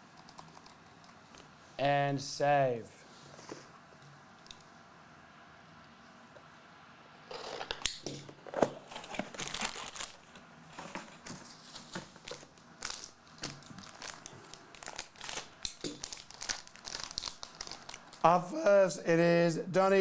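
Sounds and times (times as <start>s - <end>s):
plastic wrapping tearing and crinkling: 7.3s - 18.3s.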